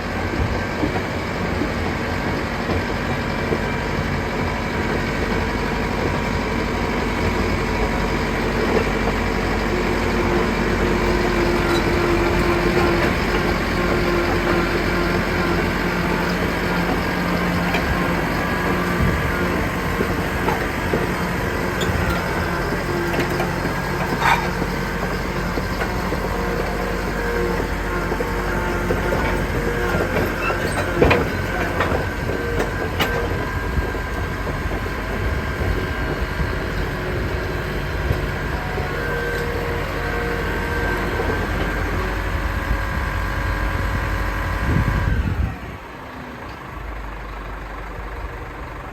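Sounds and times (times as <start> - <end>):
diesel engine running: 0.0 - 48.9
machine clanks: 19.0 - 33.5.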